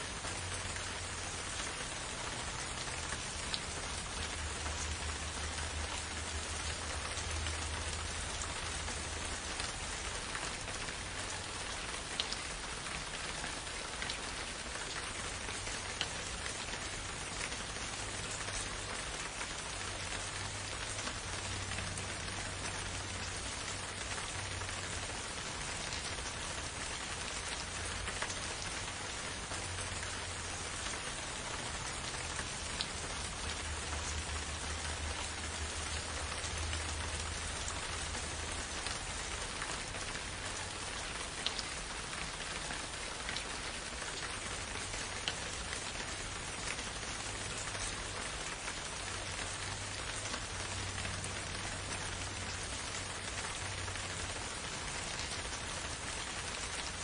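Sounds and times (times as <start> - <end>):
raindrops ticking: 0.0 - 57.0
steady rain falling: 0.0 - 57.0.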